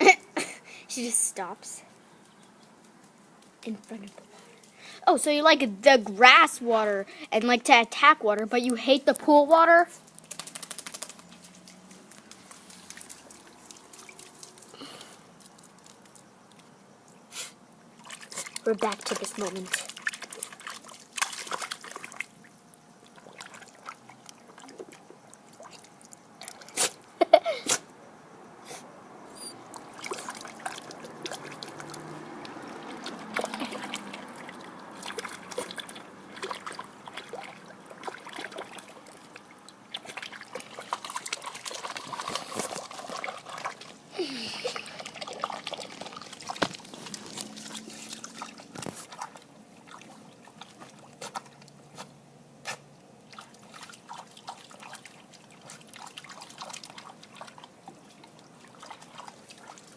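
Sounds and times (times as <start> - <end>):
water trickling from sprinkler: 0.0 - 27.6, 29.5 - 59.9
dog splashing in water: 10.1 - 16.2, 18.0 - 27.0, 29.6 - 59.9.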